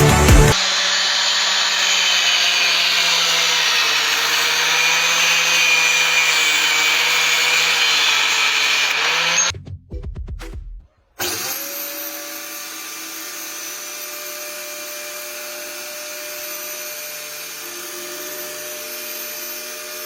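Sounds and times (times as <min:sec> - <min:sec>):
angle grinder running: 0:00.4 - 0:09.5.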